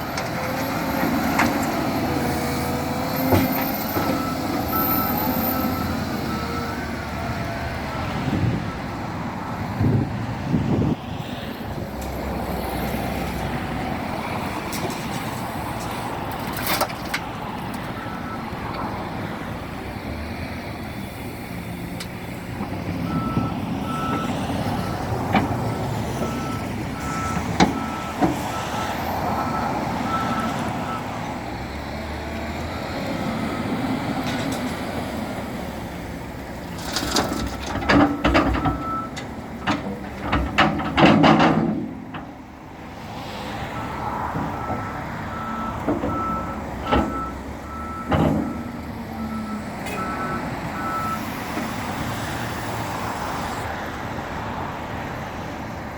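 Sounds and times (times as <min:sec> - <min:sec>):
sharp knocks and clatter: 0:36.8 - 0:42.3
reversing alarm beeps: 0:44.6 - 0:51.3.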